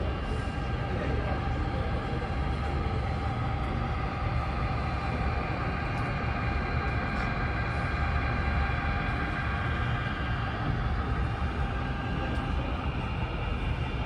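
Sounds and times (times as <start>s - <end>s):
model train rumbling: 0.0s - 14.0s.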